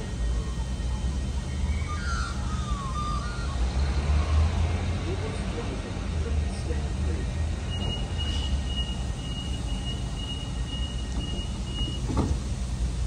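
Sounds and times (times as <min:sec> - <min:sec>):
high-pitched squeal: 0:00.0 - 0:05.3
train rumbling: 0:00.0 - 0:13.0.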